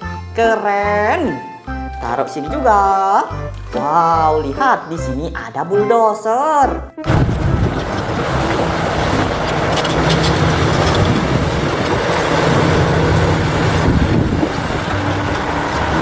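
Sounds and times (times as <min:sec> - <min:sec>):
bulldozer engine running: 0:07.0 - 0:16.0.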